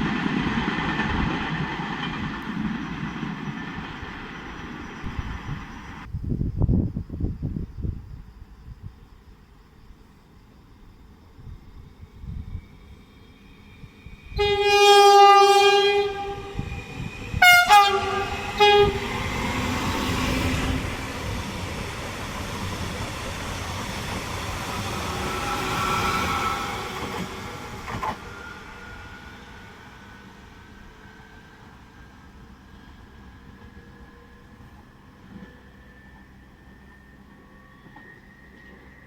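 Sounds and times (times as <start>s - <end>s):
train wheels rumbling on rails: 0.0s - 9.4s, 10.7s - 39.0s
train horn blasts: 14.3s - 20.1s.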